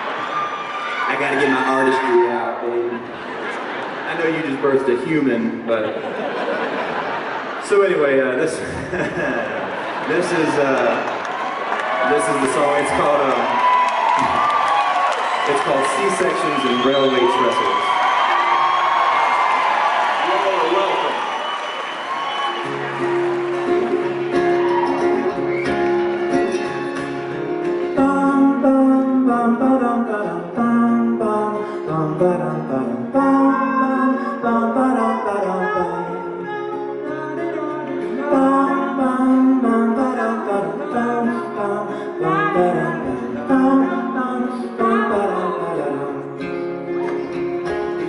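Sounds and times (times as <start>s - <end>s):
acoustic guitar strummed: 22.4s - 48.0s.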